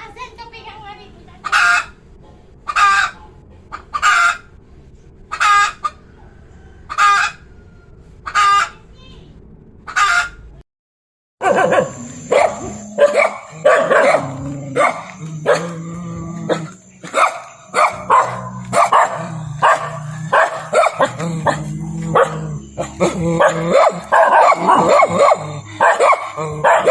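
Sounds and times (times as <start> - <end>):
dogs barking and yipping: 11.4 - 26.9.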